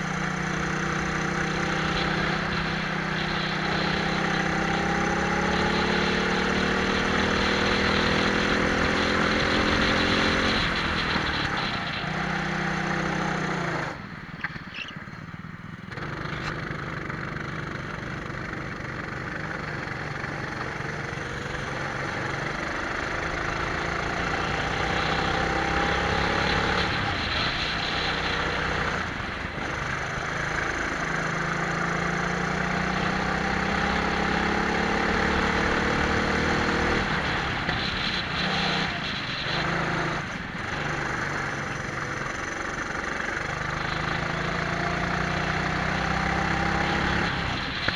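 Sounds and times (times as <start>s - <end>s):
kart engines revving: 0.0s - 47.9s.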